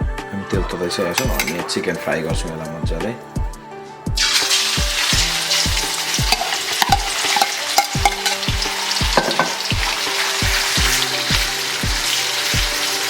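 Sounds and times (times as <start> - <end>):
chicken sizzling in hot oil: 4.2 - 13.0.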